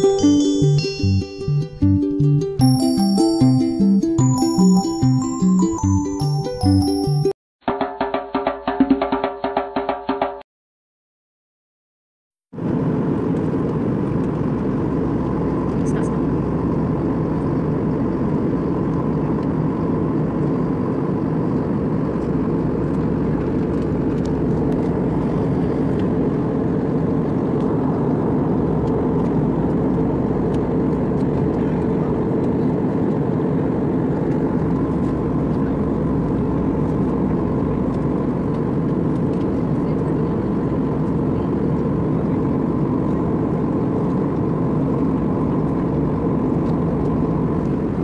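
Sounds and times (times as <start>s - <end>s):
jet engines and rushing air: 12.6s - 48.0s.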